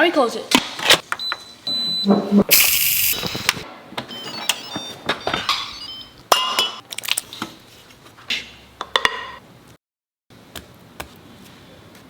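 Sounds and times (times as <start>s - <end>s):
short electronic beeps: 1.2s - 3.5s
short loud hiss: 2.5s - 3.6s.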